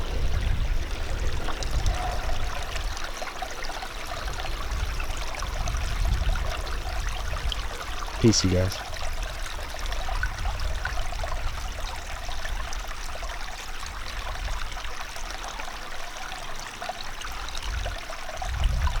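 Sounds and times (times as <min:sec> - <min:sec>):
stream trickling: 0:00.0 - 0:19.0.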